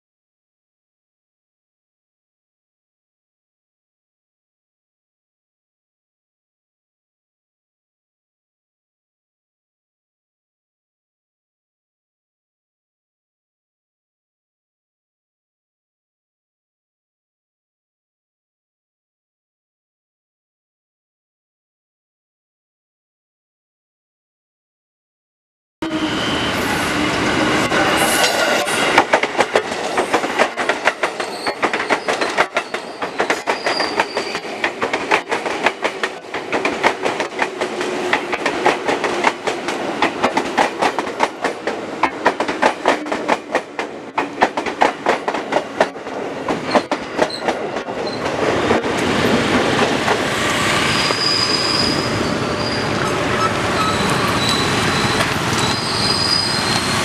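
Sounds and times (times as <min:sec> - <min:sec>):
high wheel squeal: 0:25.8 - 0:29.0, 0:31.2 - 0:34.6, 0:50.3 - 0:57.0
train rumble: 0:25.8 - 0:57.0
train wheels clacking over rail joints: 0:28.0 - 0:50.2.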